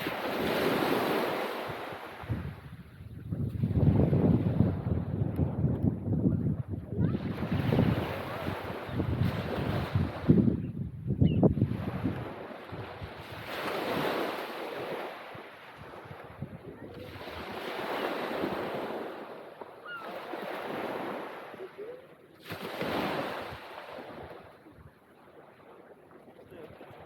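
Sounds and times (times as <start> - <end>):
waves breaking on beach: 0.0 - 5.6, 6.6 - 10.5, 11.5 - 27.0
wind on microphone: 0.0 - 19.2.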